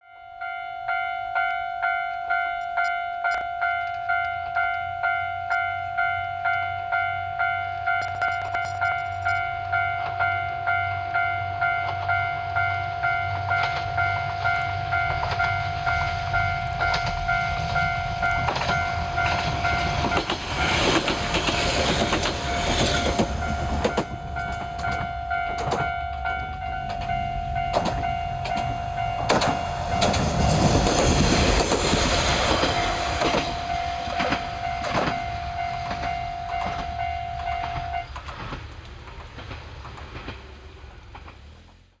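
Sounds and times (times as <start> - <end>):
steady high ringing tone: 0.0 - 21.4, 22.0 - 38.2
diesel railcar passing: 0.4 - 42.0
wheels clacking over rail joints: 16.8 - 41.8.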